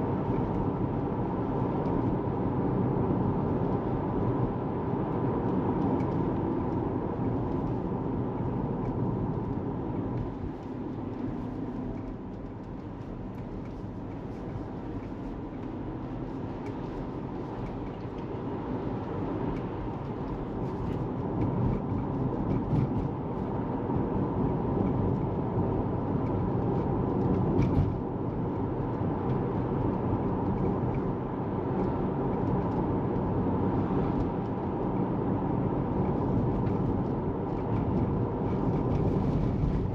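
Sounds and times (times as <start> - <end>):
tyre and road rumble: 26.2 - 39.9.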